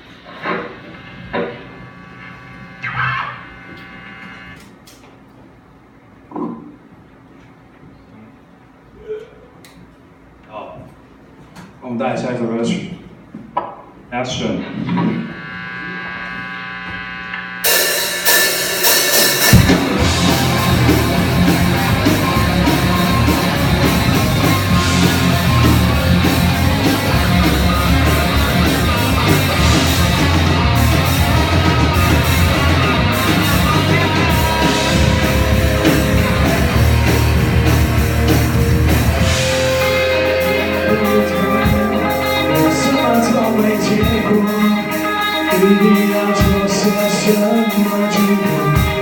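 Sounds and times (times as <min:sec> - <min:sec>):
live rock band playing: 0:17.6 - 0:49.0.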